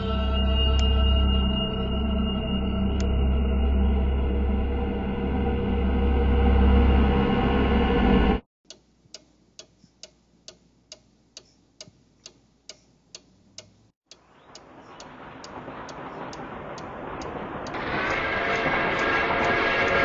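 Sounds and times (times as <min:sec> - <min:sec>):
clock ticking: 0:08.6 - 0:17.8
rushing noise: 0:14.2 - 0:20.0.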